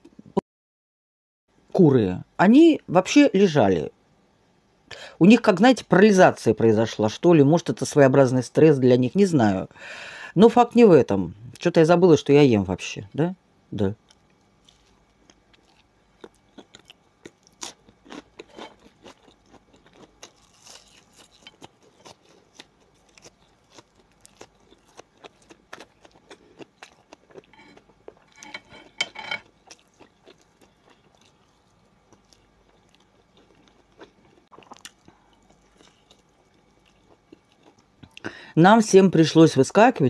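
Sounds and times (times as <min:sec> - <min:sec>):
crunchy food chewing: 0:14.0 - 0:38.3.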